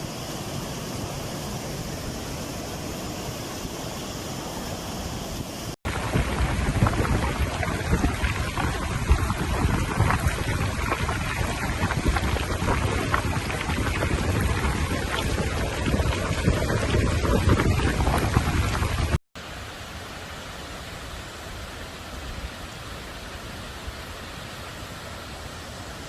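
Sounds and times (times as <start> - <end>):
rushing water spattering: 0.0 - 26.0
wind buffeting microphone: 4.4 - 19.2.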